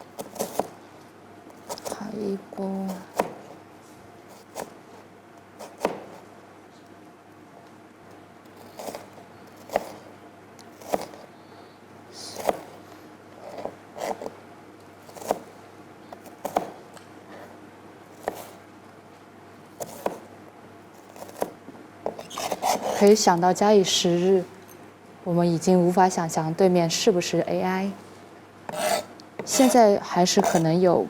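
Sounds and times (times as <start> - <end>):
knife chopping on cutting board: 0.2 - 0.7, 3.1 - 3.6, 5.6 - 6.2, 9.6 - 10.1, 12.4 - 12.8, 15.1 - 15.5, 16.2 - 16.8, 18.2 - 18.6, 19.8 - 20.2, 21.0 - 23.2, 28.7 - 30.7.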